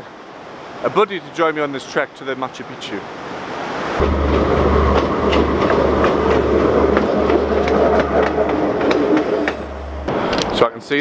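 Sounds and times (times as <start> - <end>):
train engine rumble: 4.0 - 10.6
train wheels clattering on rails: 4.0 - 10.6.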